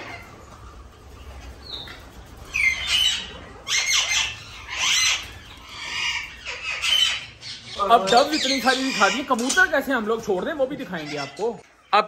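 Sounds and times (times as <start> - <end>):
birds squawking: 0.0 - 12.0.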